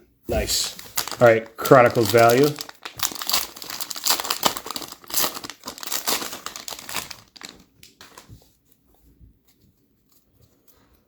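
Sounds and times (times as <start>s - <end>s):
wrapper tearing and crinkling: 0.3s - 8.3s.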